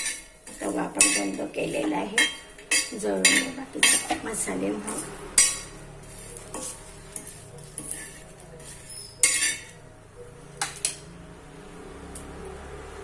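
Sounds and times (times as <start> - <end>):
spoon clinking on metal: 0.0 - 1.4, 2.2 - 4.2, 6.5 - 9.8
metal spoon scraping a pan: 0.0 - 11.2.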